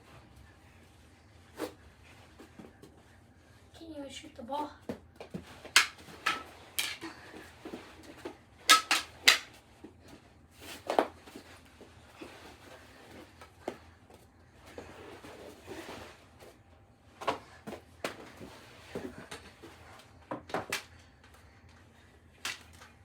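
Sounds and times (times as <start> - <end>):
hockey sticks clacking: 5.3 - 7.1, 8.6 - 9.6, 22.4 - 22.9.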